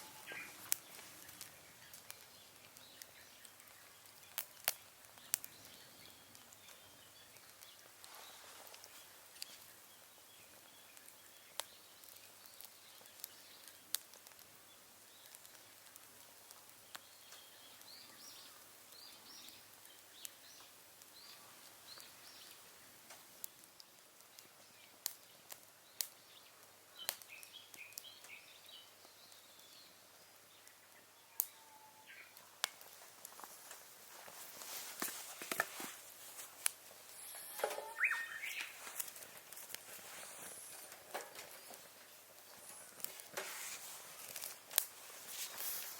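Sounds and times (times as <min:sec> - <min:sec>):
faint bird chirps: 0:00.0 - 0:04.0, 0:27.0 - 0:32.4, 0:37.1 - 0:39.0
wood fire crackling: 0:00.0 - 0:45.9
rising squeak: 0:37.1 - 0:38.4.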